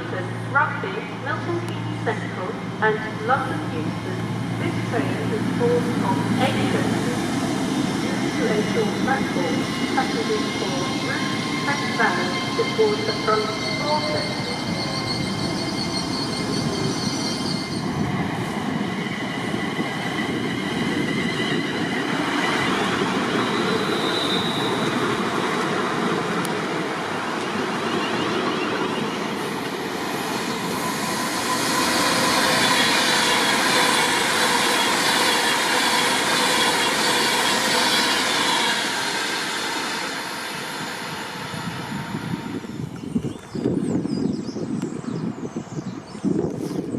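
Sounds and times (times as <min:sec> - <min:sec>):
train wheels rumbling on rail: 0:00.0 - 0:45.4
train wheels squealing: 0:06.7 - 0:25.6, 0:27.2 - 0:29.6, 0:30.2 - 0:43.6.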